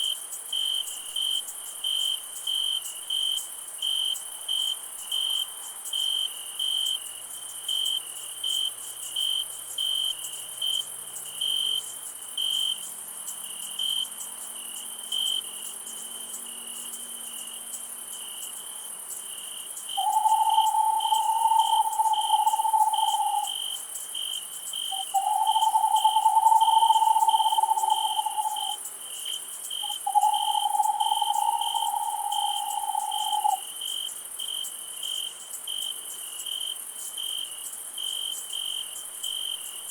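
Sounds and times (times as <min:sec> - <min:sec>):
crickets chirping: 0:00.0 - 0:39.9
high insect hiss: 0:00.0 - 0:39.9
low long even call: 0:20.0 - 0:23.6, 0:25.0 - 0:28.8, 0:29.9 - 0:33.6.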